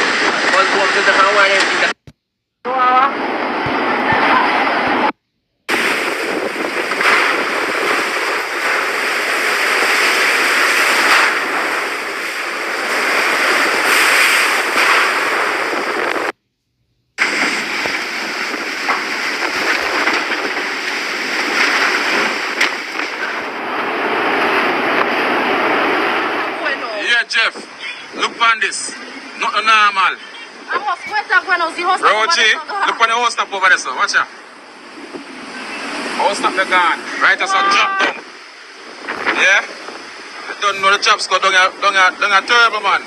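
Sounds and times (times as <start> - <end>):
storm rain roaring: 0.0 - 2.0, 2.7 - 16.4, 17.2 - 43.0.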